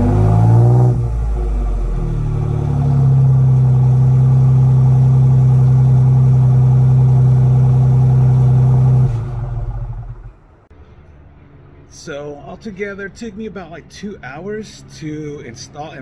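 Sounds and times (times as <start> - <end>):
car engine revving through exhaust: 0.0 - 10.6.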